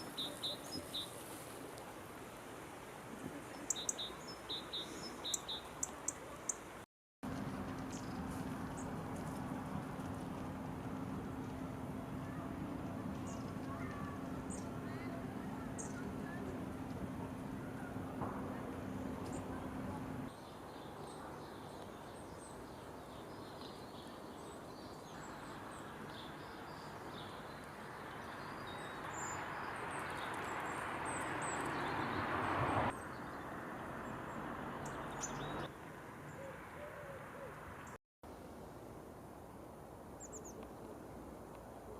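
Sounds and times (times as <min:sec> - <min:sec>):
birds chirping: 0:00.0 - 0:01.2, 0:03.4 - 0:06.7, 0:07.7 - 0:38.0
outdoor noise haze: 0:00.0 - 0:41.9.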